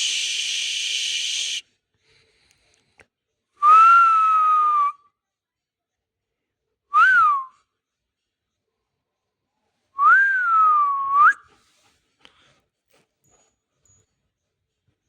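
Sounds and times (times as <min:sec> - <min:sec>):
person whistling: 0:00.0 - 0:01.6, 0:03.6 - 0:05.0, 0:07.0 - 0:07.5, 0:10.0 - 0:11.4.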